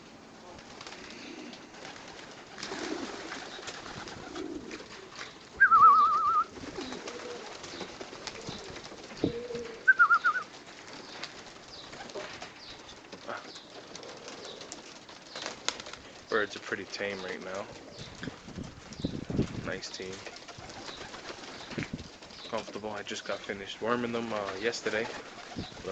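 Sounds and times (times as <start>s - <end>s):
pigeons cooing: 0.3s - 19.3s, 20.0s - 25.9s
loud warbling whistles: 5.6s - 6.5s, 9.9s - 10.5s.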